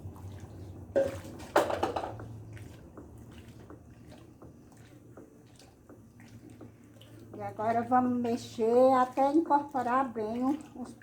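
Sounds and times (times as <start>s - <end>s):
drips and wet squishes: 0.0s - 11.0s
liquid pouring into soap mixture: 0.0s - 11.0s.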